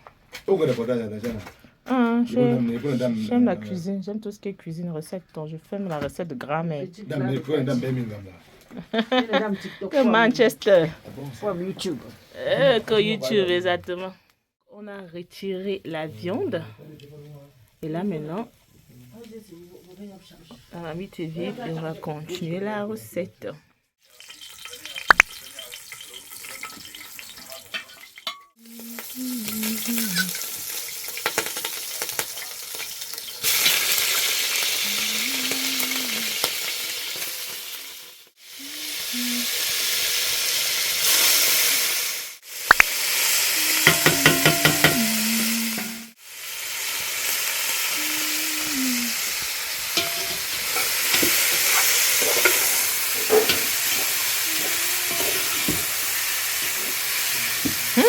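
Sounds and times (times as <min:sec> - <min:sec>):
meat sizzling in hot oil: 0:18.3 - 0:20.8, 0:24.0 - 0:58.0.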